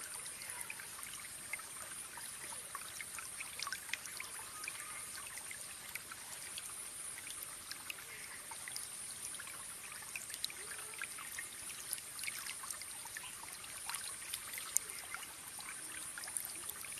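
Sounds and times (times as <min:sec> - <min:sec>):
small waterfall splashing: 0:00.0 - 0:16.9
water dripping: 0:00.0 - 0:16.9.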